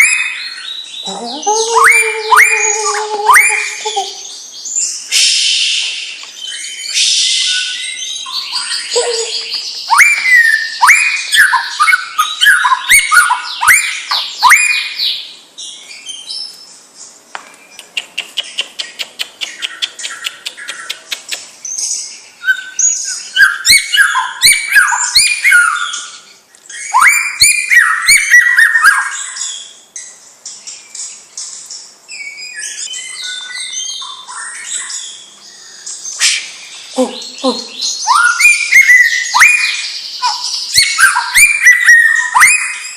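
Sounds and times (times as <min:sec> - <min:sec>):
bird singing whistles: 0:00.0 - 0:16.5, 0:21.7 - 0:29.8, 0:32.1 - 0:42.9
rapid clicking bird notes: 0:17.8 - 0:21.5.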